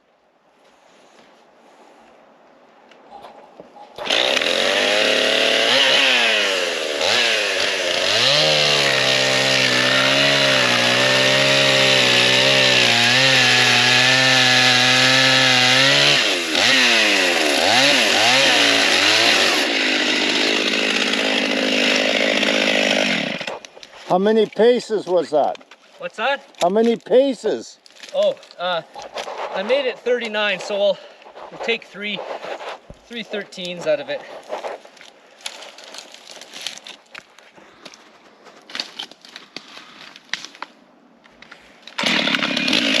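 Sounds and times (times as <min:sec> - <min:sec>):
chainsaw revving: 0:04.0 - 0:23.6, 0:42.0 - 0:43.0.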